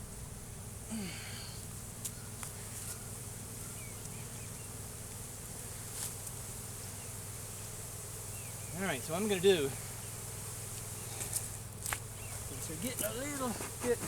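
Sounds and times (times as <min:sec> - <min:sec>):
honey bees buzzing: 0:00.0 - 0:14.0.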